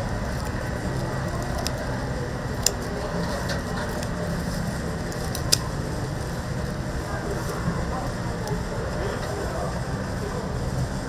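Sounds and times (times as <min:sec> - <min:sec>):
fire popping: 0:00.0 - 0:08.7
wood fire crackling: 0:00.0 - 0:09.3
fire low rumble: 0:00.0 - 0:11.0.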